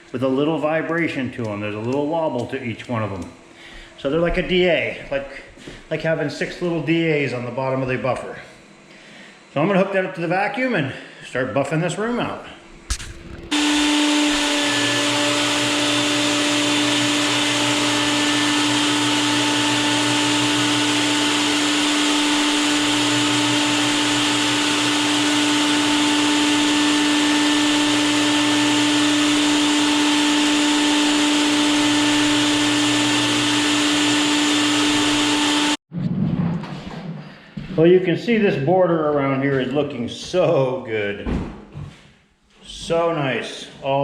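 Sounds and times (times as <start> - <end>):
floor sander motor: 12.9 - 35.8.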